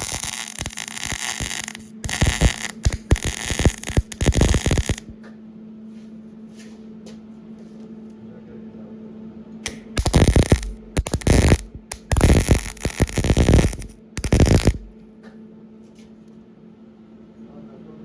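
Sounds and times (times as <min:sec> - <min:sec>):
faint ticks: 0:00.0 - 0:05.1, 0:09.7 - 0:15.0
welding arc crackling: 0:00.0 - 0:05.2, 0:09.7 - 0:15.0.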